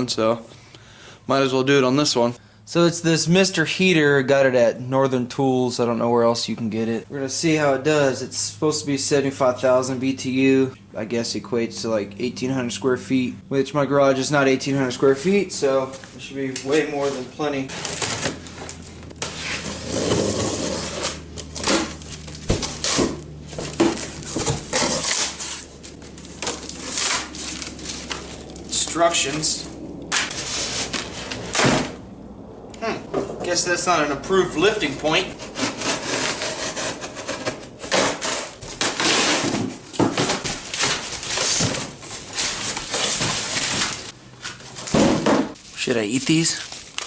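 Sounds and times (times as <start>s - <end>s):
cardboard box scraping and rustling: 16.8s - 28.5s, 30.2s - 31.8s, 35.4s - 45.0s
cardboard box being pulled open: 19.3s - 23.0s.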